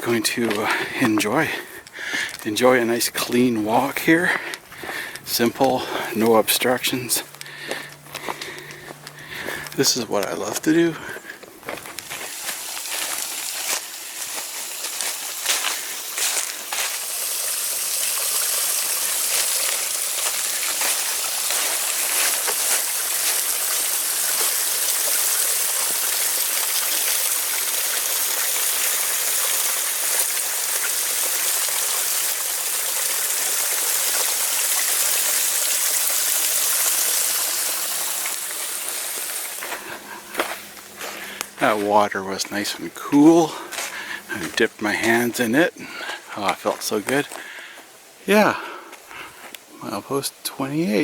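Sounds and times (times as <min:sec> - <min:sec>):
creek rushing and splashing: 0:12.1 - 0:42.2.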